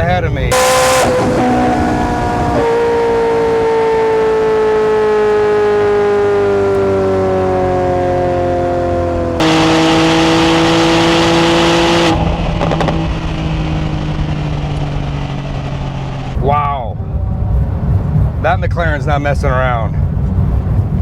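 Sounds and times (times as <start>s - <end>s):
car engine decelerating: 0.0s - 21.0s.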